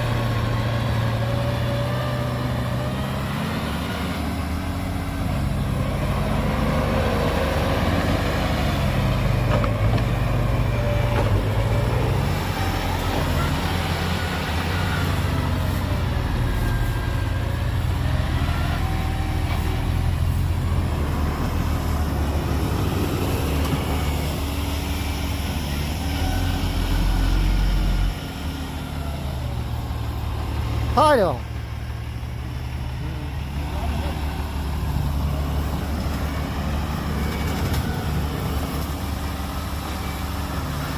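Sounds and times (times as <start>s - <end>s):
diesel engine revving: 0.0s - 40.9s.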